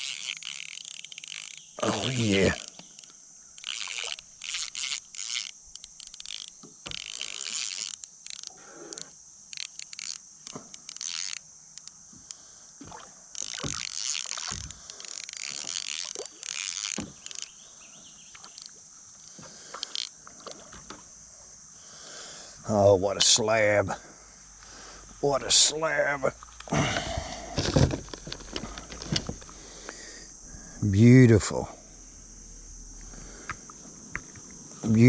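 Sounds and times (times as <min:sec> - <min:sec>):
fishing reel cranking: 0:00.0 - 0:12.4, 0:13.3 - 0:17.6, 0:18.4 - 0:18.8, 0:19.8 - 0:20.2
steady high hiss: 0:00.0 - 0:35.0
water splashing: 0:19.6 - 0:21.0
handling noise: 0:26.4 - 0:29.6.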